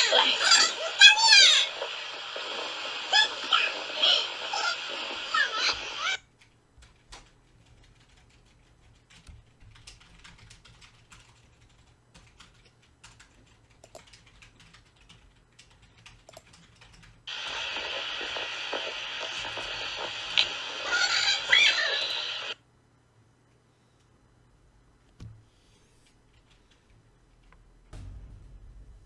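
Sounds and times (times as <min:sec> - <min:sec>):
faint keyboard-like clicks: 0:06.4 - 0:20.5, 0:25.1 - 0:27.6.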